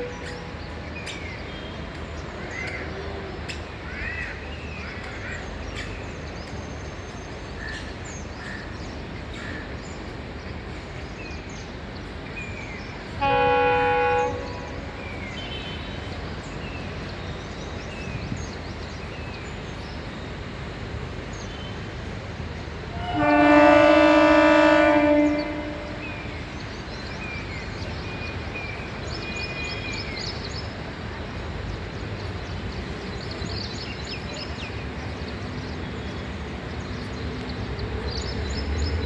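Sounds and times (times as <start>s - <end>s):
train horn blast: 0.0s - 0.8s, 13.1s - 16.1s, 22.9s - 26.5s
birds chirping: 0.0s - 39.0s.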